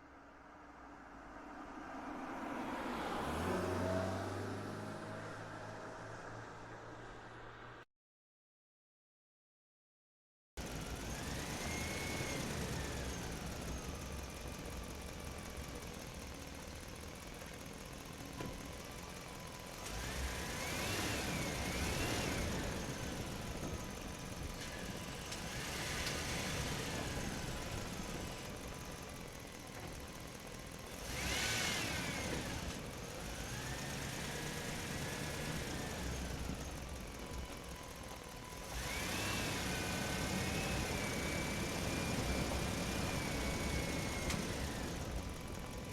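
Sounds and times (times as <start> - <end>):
truck engine revving: 10.6 - 45.9.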